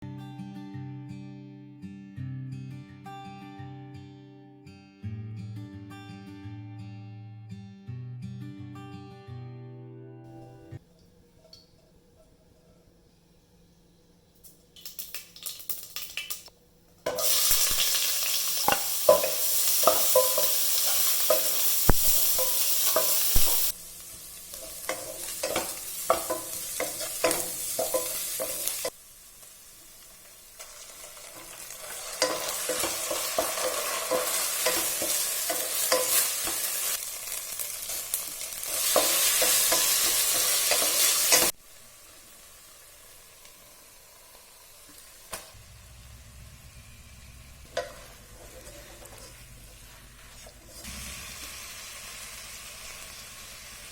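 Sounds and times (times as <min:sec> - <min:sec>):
food sizzling in hot oil: 0:14.8 - 0:16.5, 0:17.1 - 0:53.9
spoon clicking and scraping pan: 0:18.6 - 0:23.7, 0:24.5 - 0:28.9, 0:32.1 - 0:36.8.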